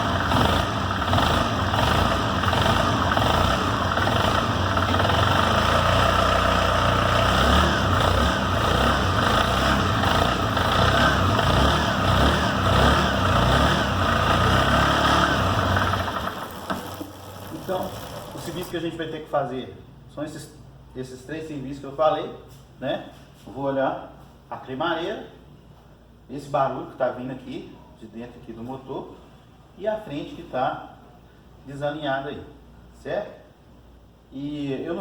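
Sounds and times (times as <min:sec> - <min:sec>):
motorcycle engine idling: 0:00.0 - 0:18.8.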